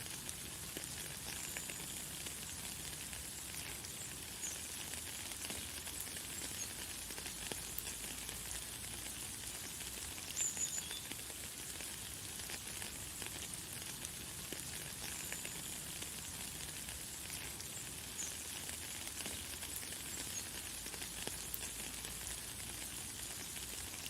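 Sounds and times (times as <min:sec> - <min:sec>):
light rain pattering: 0:00.0 - 0:24.0
faint bird chirps: 0:10.4 - 0:11.1.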